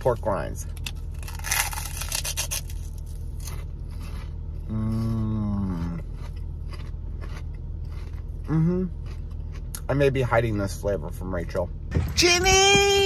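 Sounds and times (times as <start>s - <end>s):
crunching pork rinds: 0.0s - 10.3s
man humming: 4.7s - 6.0s
car cabin hum: 11.6s - 13.0s.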